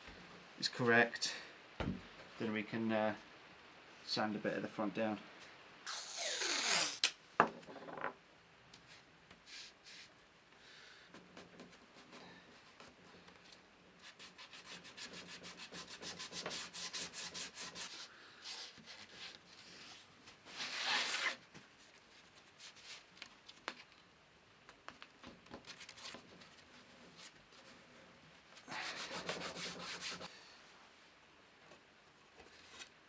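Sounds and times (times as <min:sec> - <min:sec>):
sandpaper rasping on wood: 0:14.0 - 0:19.2, 0:28.7 - 0:30.3.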